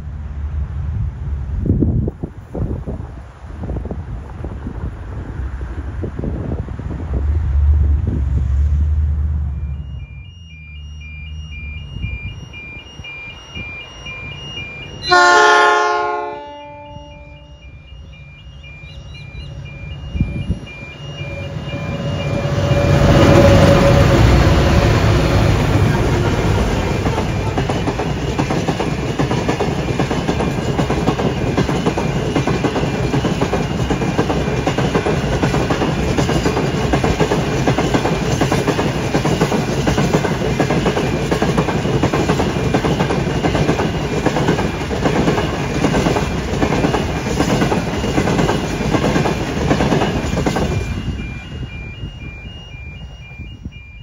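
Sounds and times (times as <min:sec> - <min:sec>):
diesel locomotive engine: 0:00.0 - 0:54.0
train wheels clacking on rail joints: 0:21.9 - 0:51.1.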